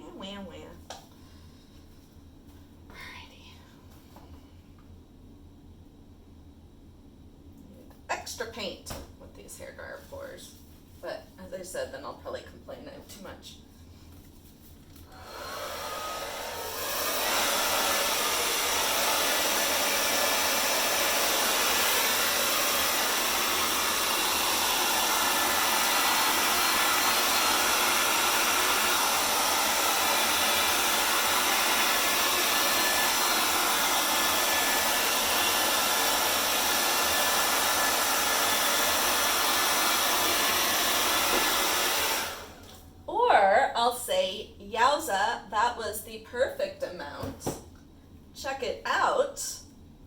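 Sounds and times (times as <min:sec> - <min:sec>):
hair dryer blowing: 0:15.1 - 0:42.7.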